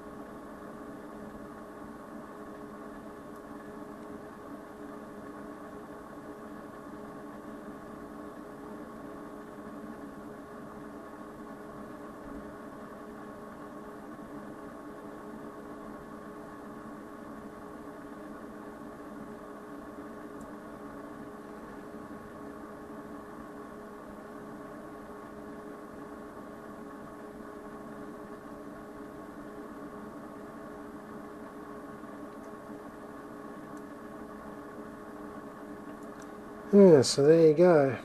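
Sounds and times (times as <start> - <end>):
electrical hum: 0.0 - 38.0
low hiss: 36.6 - 38.0.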